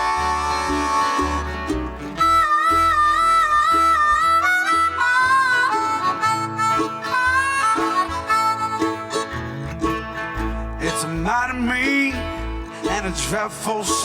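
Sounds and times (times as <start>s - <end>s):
harmonica solo with trill: 0.0s - 11.0s
acoustic guitar: 0.0s - 14.0s
bass line: 0.0s - 14.0s.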